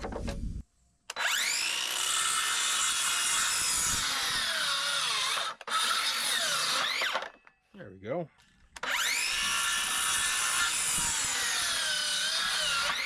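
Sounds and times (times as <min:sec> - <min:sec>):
electric saw cutting wood: 0:01.1 - 0:07.3, 0:08.8 - 0:13.0.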